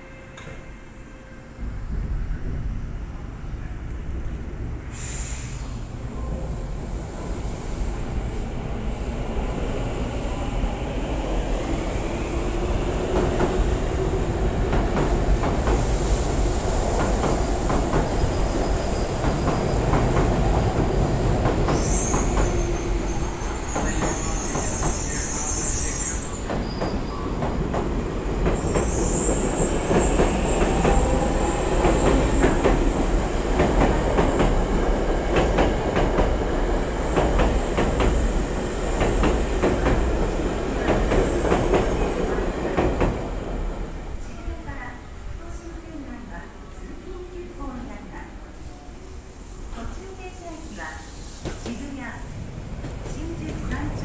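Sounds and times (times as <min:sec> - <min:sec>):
electric train rumbling on rails: 0:00.0 - 0:54.0
rail-joint clicks: 0:00.3 - 0:00.7
train wheels squealing: 0:17.9 - 0:27.4, 0:28.6 - 0:33.9.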